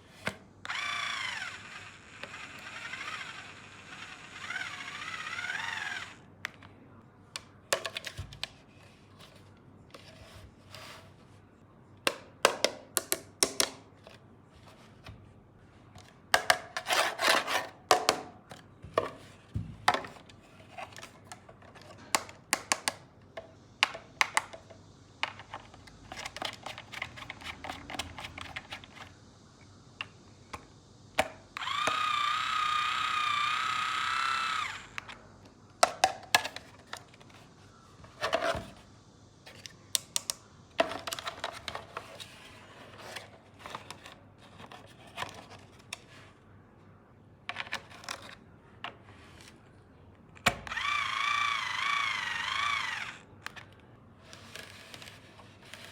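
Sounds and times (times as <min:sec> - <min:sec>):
toy power tool motor whine: 0:00.6 - 0:06.3, 0:31.5 - 0:35.3, 0:50.6 - 0:53.3
plastic toy tools clicking: 0:31.2 - 0:35.2, 0:50.4 - 0:53.7.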